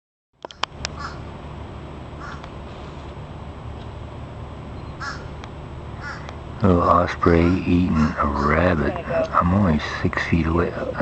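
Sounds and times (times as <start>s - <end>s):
sharp clicks: 0.4s - 1.0s
low background rumble: 0.4s - 11.0s
crows cawing: 0.5s - 1.3s, 2.2s - 2.5s, 5.0s - 5.4s, 6.0s - 9.4s.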